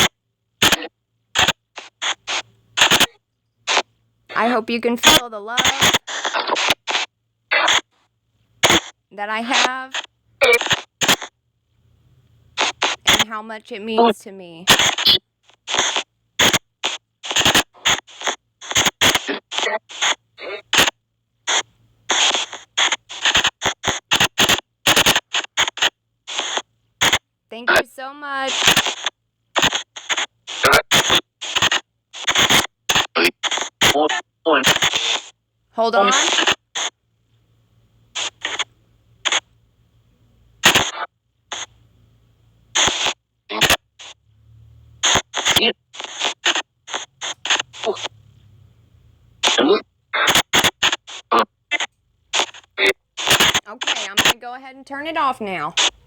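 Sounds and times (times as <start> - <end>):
bursts of hissing white noise: 0.0 - 8.0, 8.6 - 11.3, 12.5 - 37.0, 40.6 - 41.8, 42.6 - 54.4
clipped radio fragments: 0.0 - 11.4, 12.6 - 36.9, 38.1 - 39.5, 40.6 - 41.7, 42.7 - 44.2, 45.0 - 48.2, 49.4 - 56.0
voice-like fragments: 53.3 - 54.4.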